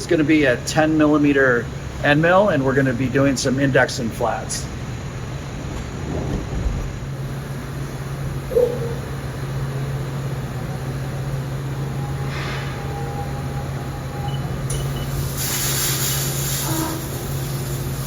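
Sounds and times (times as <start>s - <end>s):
milling machine hum: 4.7s - 8.2s.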